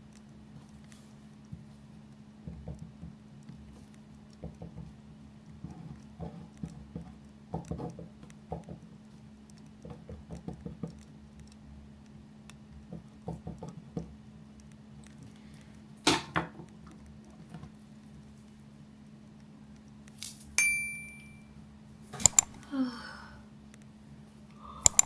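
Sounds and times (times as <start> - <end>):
pen tapping and scratching paper: 5.6 - 8.8
sharp click: 22.2 - 22.6.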